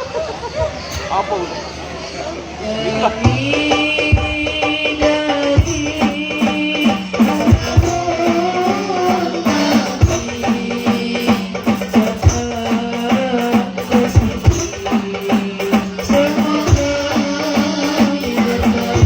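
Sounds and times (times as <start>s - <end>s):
drum strokes on steady beat: 3.3s - 19.0s.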